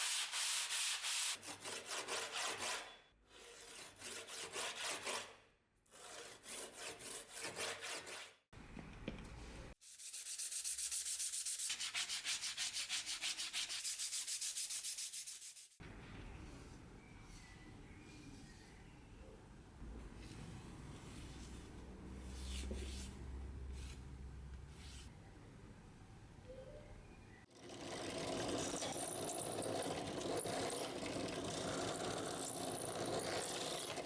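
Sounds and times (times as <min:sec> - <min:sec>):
sandpaper rubbing on steel blade: 0:00.0 - 0:05.3, 0:09.8 - 0:15.8, 0:24.7 - 0:25.1.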